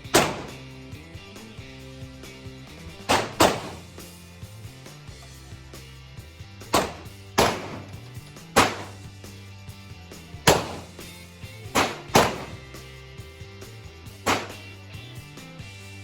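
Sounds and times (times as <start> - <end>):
gunshots: 0.1 - 0.6, 3.1 - 4.0, 6.8 - 8.0, 8.6 - 9.1, 10.5 - 11.0, 11.8 - 12.7, 14.3 - 14.7.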